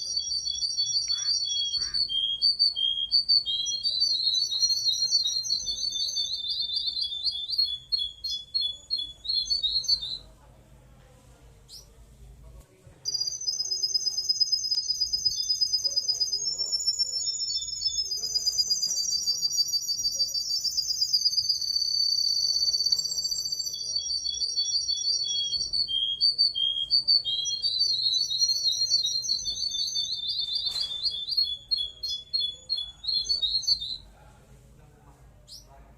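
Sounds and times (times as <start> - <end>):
songbird high rapid trill: 0.0 - 6.4.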